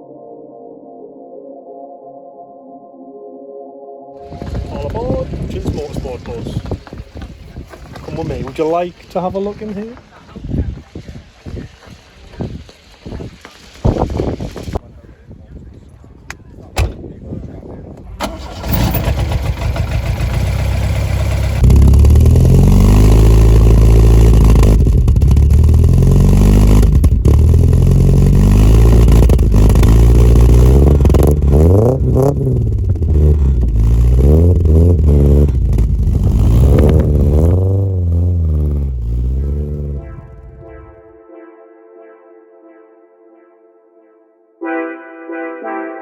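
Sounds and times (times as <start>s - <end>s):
car engine revving: 18.2s - 40.7s.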